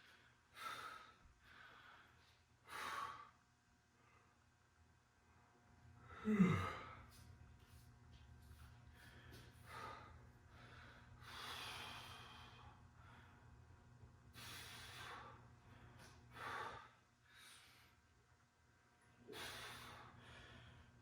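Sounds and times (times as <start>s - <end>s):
faint steady hum: 0.0s - 21.0s
person breathing heavily: 6.1s - 7.1s, 9.0s - 13.4s, 14.4s - 18.0s, 19.3s - 21.0s.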